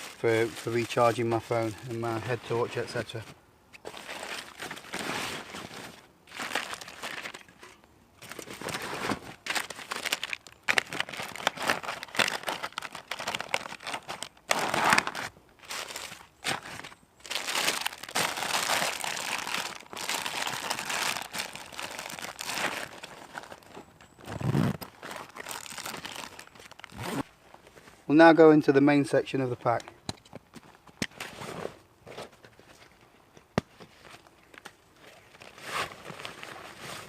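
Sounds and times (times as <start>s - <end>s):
bags and packaging crinkling: 0.0s - 3.2s, 3.8s - 27.2s.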